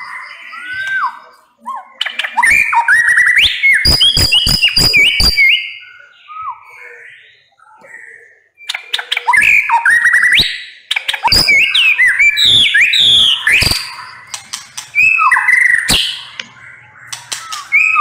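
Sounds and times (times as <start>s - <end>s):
bird singing clicks and whistles: 0.0s - 1.3s, 1.9s - 5.6s, 8.6s - 18.0s.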